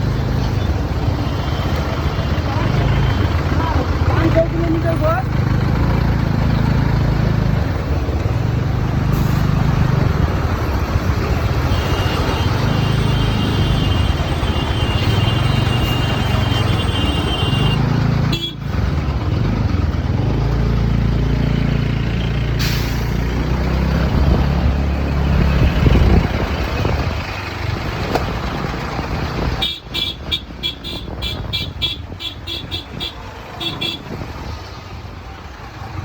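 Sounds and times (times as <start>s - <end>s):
traffic noise: 0.0s - 36.0s
vehicle horn tooting: 11.7s - 18.6s, 29.6s - 34.2s.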